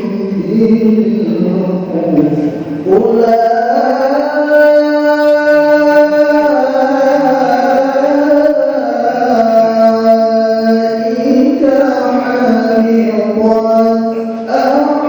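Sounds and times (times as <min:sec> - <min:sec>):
man chanting melodic recitation: 0:00.0 - 0:15.0.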